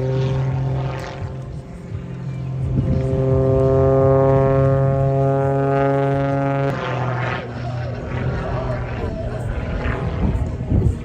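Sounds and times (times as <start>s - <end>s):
plane propeller engine droning: 0.0s - 11.0s.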